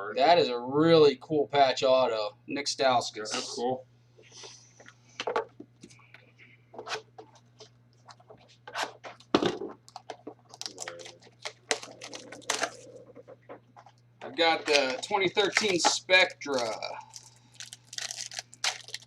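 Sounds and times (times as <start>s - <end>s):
card wrappers tearing and crinkling: 9.9s - 12.9s, 14.4s - 19.0s.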